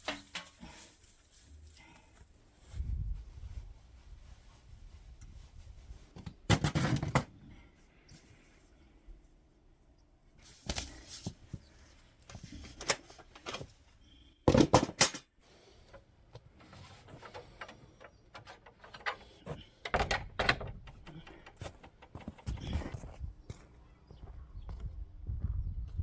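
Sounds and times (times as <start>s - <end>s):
knocks and clatter: 16.6s - 22.8s.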